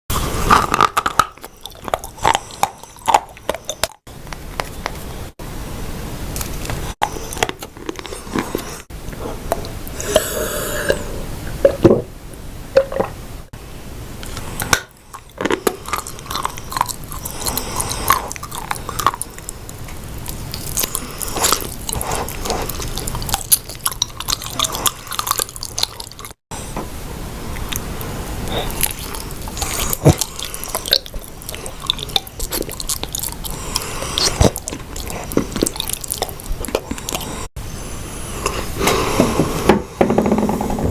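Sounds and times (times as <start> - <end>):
person chewing crunchy clay: 0.1 - 5.2, 6.4 - 11.1, 14.2 - 26.4, 27.6 - 37.6.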